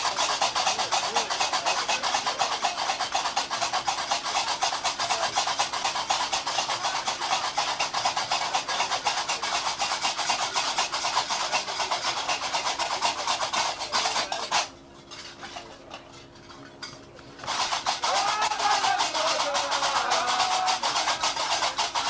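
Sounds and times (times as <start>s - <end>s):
iron castanets clattering: 0.0s - 22.0s.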